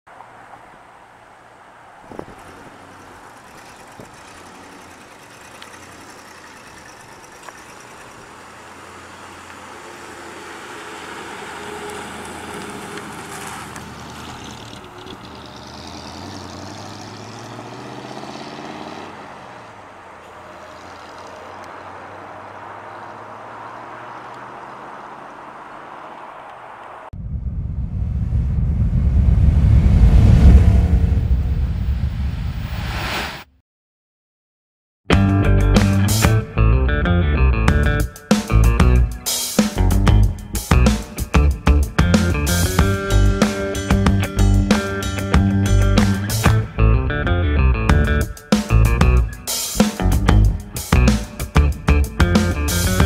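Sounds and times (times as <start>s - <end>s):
car engine driving by: 0.1s - 27.1s, 28.1s - 33.3s.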